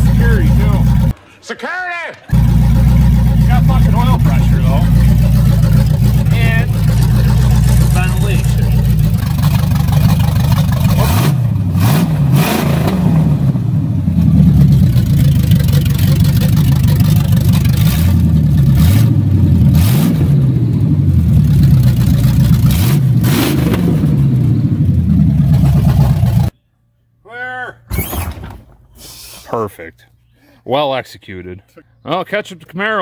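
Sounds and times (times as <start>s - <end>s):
car engine revving: 0.0s - 1.3s, 2.2s - 26.5s.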